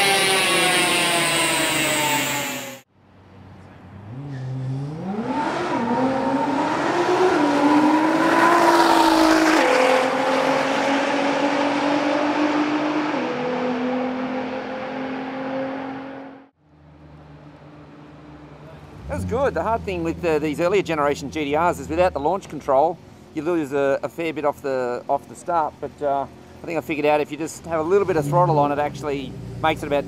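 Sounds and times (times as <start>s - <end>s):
car engine winding down: 0.0s - 2.8s, 16.7s - 23.3s
car accelerating away: 0.0s - 23.0s, 27.7s - 30.0s.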